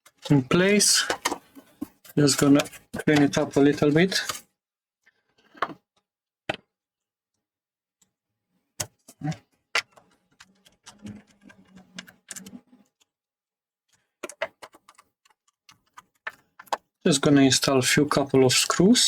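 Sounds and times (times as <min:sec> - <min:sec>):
clicks and knocks of handled parts: 0:00.0 - 0:04.4.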